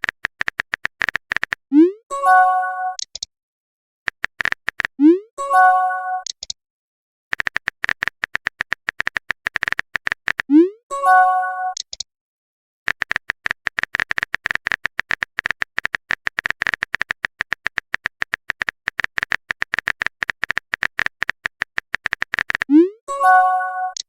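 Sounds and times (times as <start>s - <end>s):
keyboard typing clicks: 0.0s - 1.9s, 2.9s - 3.3s, 4.1s - 5.2s, 6.1s - 6.6s, 7.3s - 10.7s, 11.7s - 12.1s, 12.9s - 24.0s.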